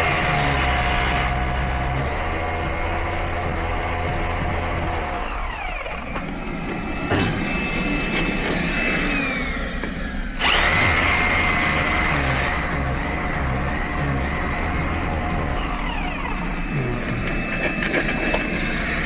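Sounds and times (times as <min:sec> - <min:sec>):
motor humming and whining: 0:00.0 - 0:19.0.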